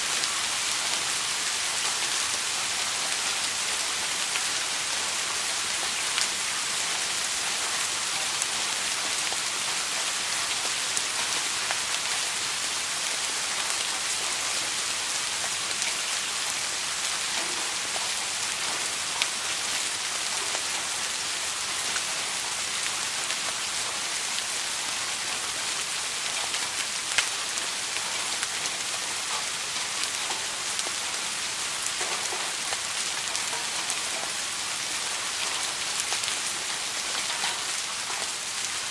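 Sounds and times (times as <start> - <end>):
steady rain falling: 0.0 - 38.9
raindrops landing close by: 17.3 - 20.9, 25.6 - 38.9.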